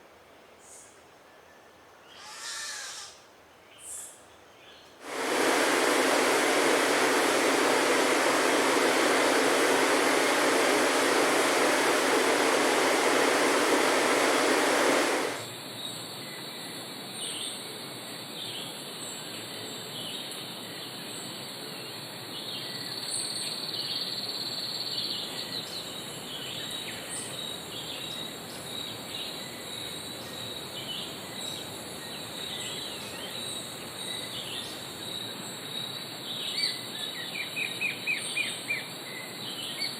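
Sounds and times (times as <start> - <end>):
faint insect hum: 0.0 - 39.9
loud rushing hiss: 5.0 - 15.6.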